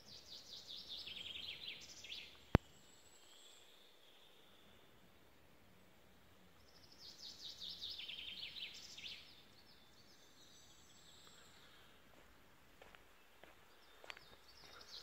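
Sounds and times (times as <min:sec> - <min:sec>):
faint outdoor hiss: 0:00.0 - 0:15.0
songbird singing: 0:00.0 - 0:15.0.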